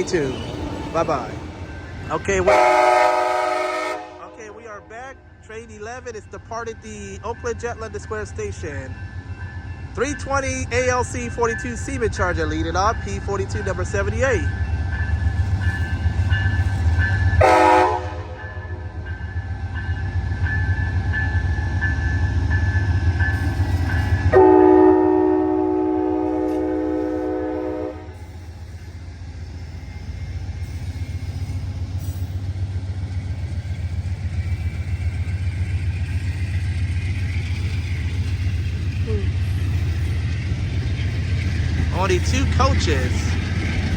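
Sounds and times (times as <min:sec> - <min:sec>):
train rumbling along track: 0:00.0 - 0:43.9
train horn blasts: 0:02.4 - 0:04.8, 0:17.4 - 0:18.8, 0:24.3 - 0:28.2.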